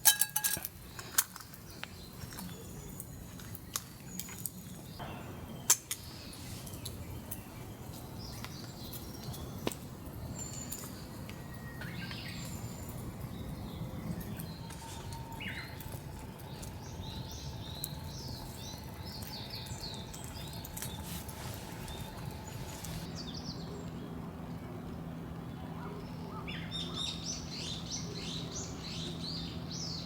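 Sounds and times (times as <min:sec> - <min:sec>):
background hiss: 0:20.7 - 0:23.1.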